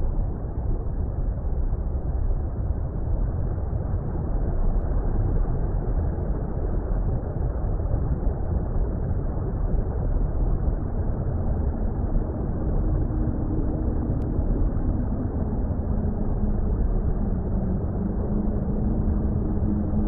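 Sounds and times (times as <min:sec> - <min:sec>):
faint low drone: 0:00.0 - 0:20.0
muffled underwater rumble: 0:00.0 - 0:20.0.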